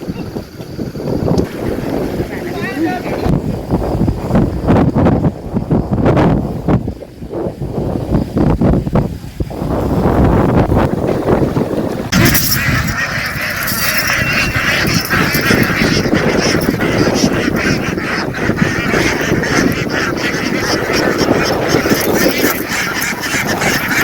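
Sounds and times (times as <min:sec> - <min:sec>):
flock of ducks quacking: 0:12.1 - 0:24.0.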